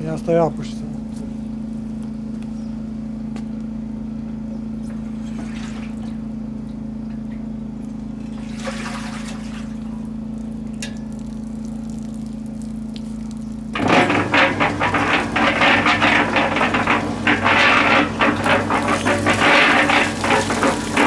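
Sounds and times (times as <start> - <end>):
water running: 11.1 - 21.0
water splashing: 11.5 - 21.0.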